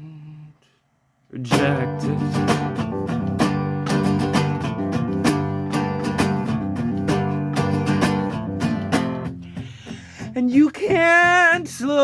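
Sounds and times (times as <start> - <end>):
guitar plucked or strummed: 1.5 - 12.0.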